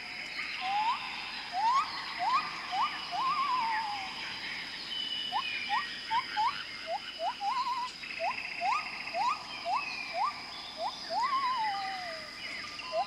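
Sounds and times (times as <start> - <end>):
high insect drone: 0.0 - 13.0
short rising whistled bird calls: 0.0 - 13.0
wavering trills: 0.6 - 4.2.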